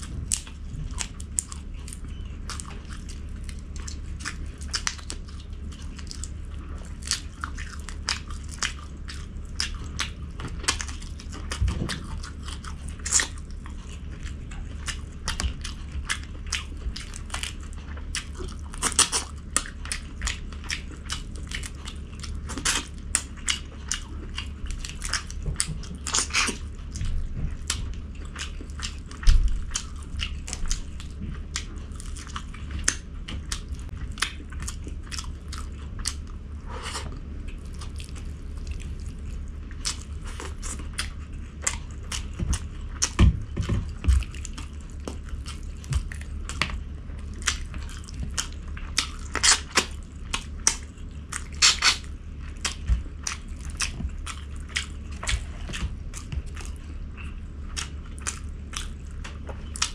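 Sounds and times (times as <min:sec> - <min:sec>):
person chewing: 0:00.0 - 0:59.9
steady low hum: 0:00.0 - 0:59.9
crunching bites: 0:39.7 - 0:57.1.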